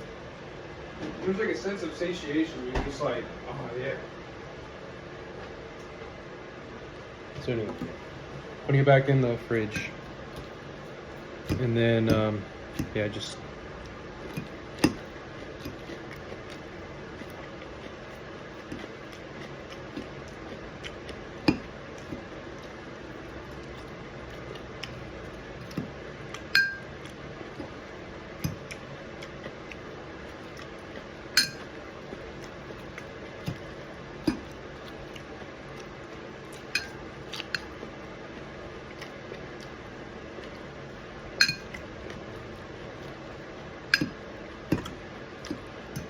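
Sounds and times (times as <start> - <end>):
steady background noise: 0.0 - 46.0
cutlery clinking on a plate: 26.6 - 26.9, 31.4 - 31.7, 36.8 - 37.0, 41.4 - 41.8, 43.9 - 44.2.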